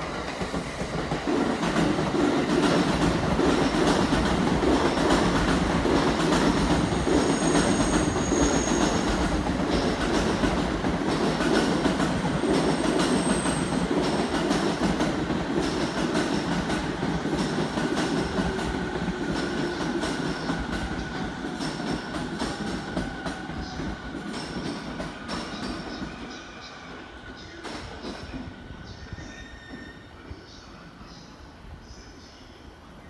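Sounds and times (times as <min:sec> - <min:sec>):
train wheels clicking over rail joints: 0:00.0 - 0:26.1.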